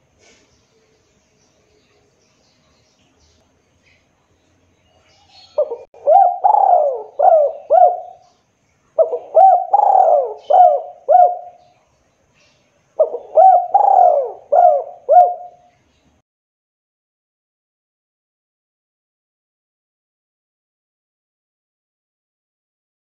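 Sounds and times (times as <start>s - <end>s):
dove cooing: 5.3s - 8.3s, 9.0s - 11.7s, 13.0s - 15.7s.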